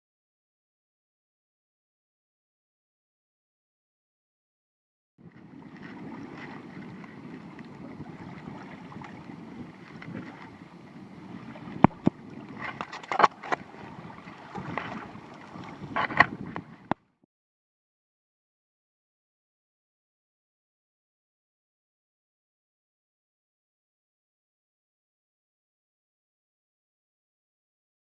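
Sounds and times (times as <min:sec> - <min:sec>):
wind on microphone: 0:05.2 - 0:17.0
water slapping around kayak: 0:05.2 - 0:17.1.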